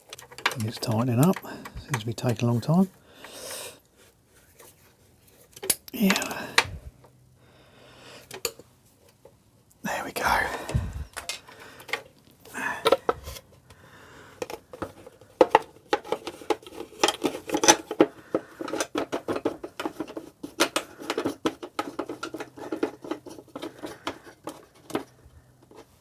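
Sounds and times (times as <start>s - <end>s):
hand tools clicking and tapping: 0.0s - 3.4s, 5.5s - 7.2s, 10.2s - 13.8s, 14.4s - 26.0s.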